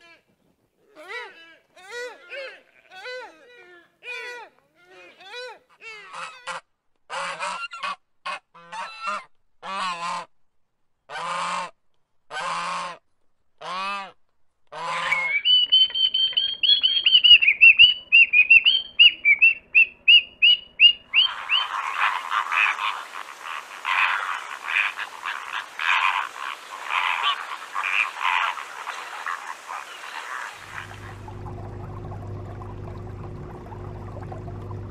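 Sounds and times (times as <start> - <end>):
geese honking: 14.8 - 32.7
harsh bird calls: 15.0 - 31.2
high thin bird chirps: 15.1 - 22.0.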